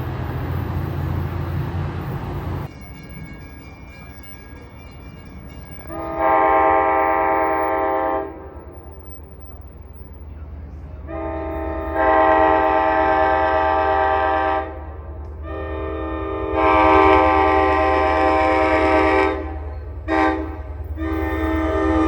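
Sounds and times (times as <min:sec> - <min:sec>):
train rumble: 0:00.0 - 0:22.0
train horn blasts: 0:05.8 - 0:09.0, 0:11.0 - 0:22.0.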